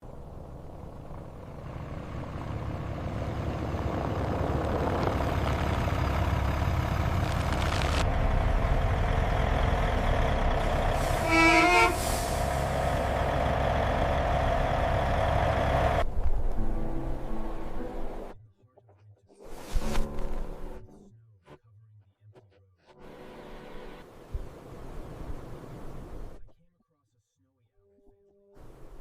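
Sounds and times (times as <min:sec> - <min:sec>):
heavy truck rumbling: 0:00.0 - 0:18.4
truck horn blast: 0:09.8 - 0:13.4.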